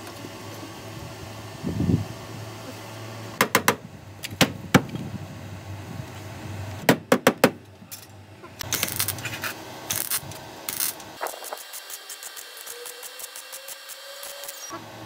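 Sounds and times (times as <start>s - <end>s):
metal tools clinking: 7.9s - 9.4s
rough hissing strokes: 8.6s - 14.7s.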